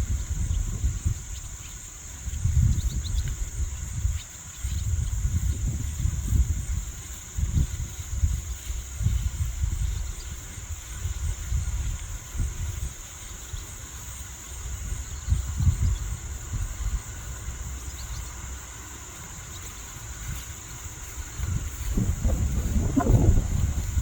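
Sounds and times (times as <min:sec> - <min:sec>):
wind buffeting microphone: 0:00.0 - 0:13.8, 0:14.5 - 0:17.7, 0:19.3 - 0:24.0.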